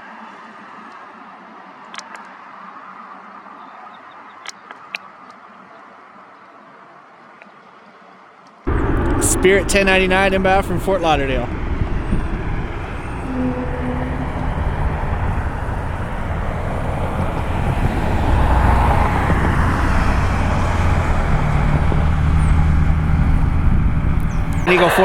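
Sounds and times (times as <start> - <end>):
jet engine roar: 8.7 - 25.0.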